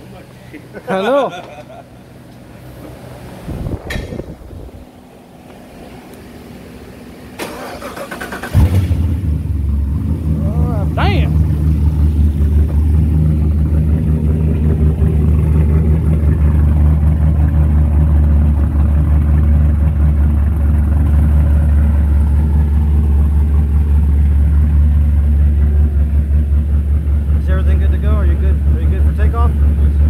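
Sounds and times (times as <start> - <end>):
car engine idling loudly: 8.1 - 30.0.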